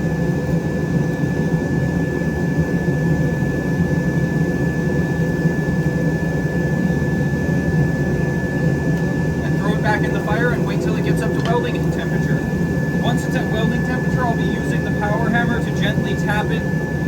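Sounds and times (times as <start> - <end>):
thin high whine: 9.4 - 17.0.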